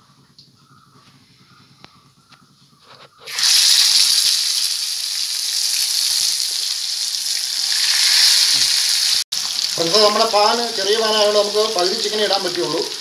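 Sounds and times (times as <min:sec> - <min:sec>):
chicken sizzling in hot oil: 0:03.3 - 0:13.0.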